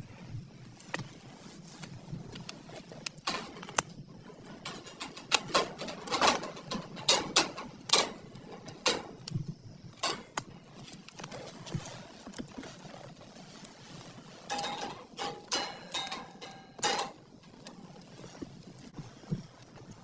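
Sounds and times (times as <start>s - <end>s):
sharp clicks and knocks: 4.6s - 9.4s.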